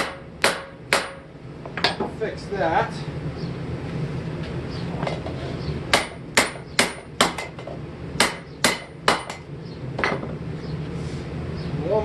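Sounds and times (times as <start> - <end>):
hammer striking steel on anvil: 0.0 - 2.0, 5.9 - 7.6, 8.2 - 10.2
steady low hum: 0.0 - 12.0.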